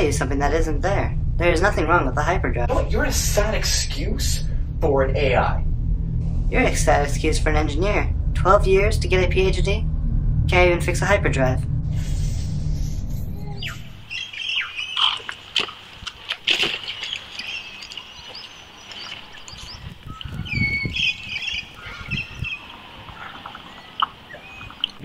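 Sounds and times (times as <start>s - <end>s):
low thuds: 0.0s - 14.1s
birds chirping and squawking: 11.9s - 15.9s, 16.5s - 25.0s.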